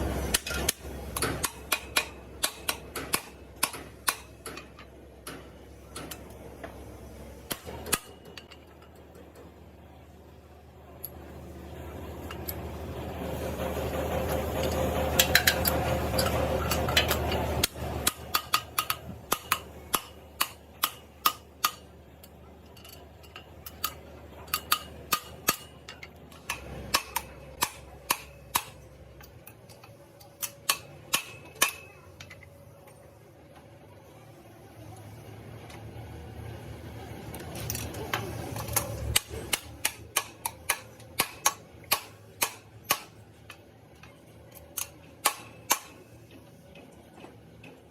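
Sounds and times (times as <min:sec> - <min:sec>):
sharp metallic knocks and taps: 0:00.3 - 0:06.8, 0:14.6 - 0:32.5, 0:38.6 - 0:47.8
steady machine noise: 0:09.5 - 0:22.5.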